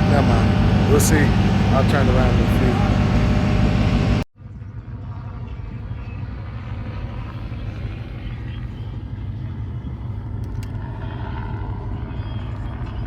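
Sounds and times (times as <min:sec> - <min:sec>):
car engine rumble: 0:00.0 - 0:04.3.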